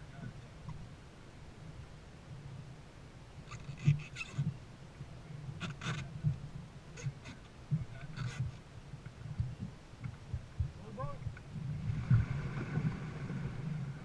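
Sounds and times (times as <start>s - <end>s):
water splashing against a boat: 3.4s - 14.0s
steady low rumble: 4.5s - 14.0s
low thuds: 6.1s - 13.8s.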